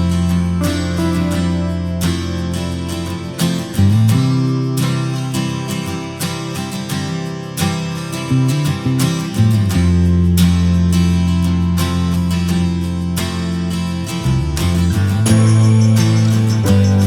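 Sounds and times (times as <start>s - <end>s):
sustained bass notes: 0.0s - 4.7s, 14.2s - 17.0s
strummed acoustic guitar: 0.0s - 17.0s.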